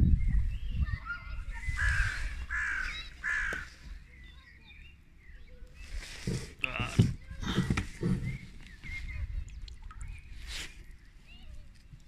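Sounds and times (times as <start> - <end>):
low microphone rumble: 0.0 - 2.5
bird calling: 1.0 - 4.5.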